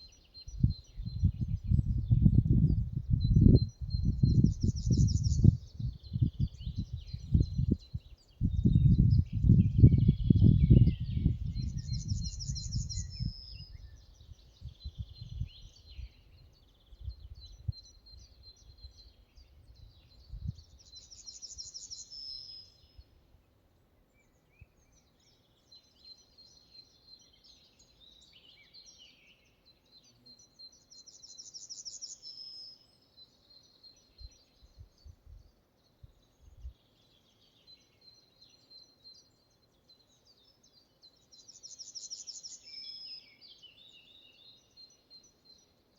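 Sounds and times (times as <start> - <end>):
wind rumbling on microphone: 0.3 - 21.9, 34.2 - 36.8.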